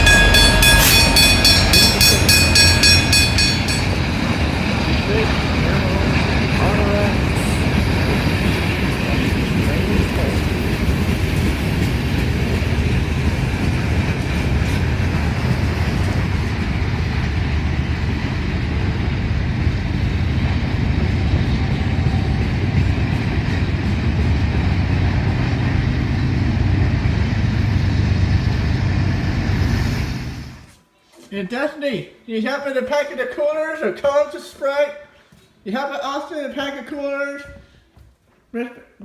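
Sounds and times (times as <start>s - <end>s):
vehicle low rumble: 0.0s - 30.7s.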